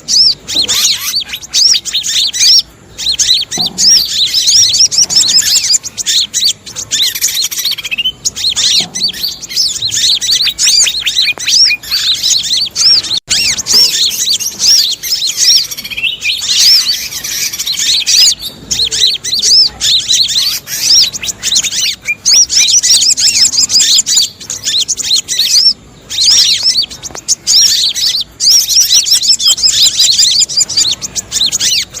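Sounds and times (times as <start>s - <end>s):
alarm-like bird calls: 0.0s - 32.0s
high-pitched bird chattering: 0.0s - 32.0s.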